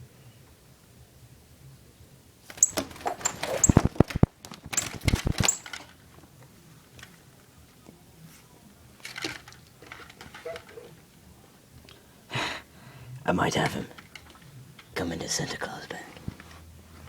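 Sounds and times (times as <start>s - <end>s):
bird fluttering and clattering: 2.4s - 6.1s, 9.0s - 11.0s.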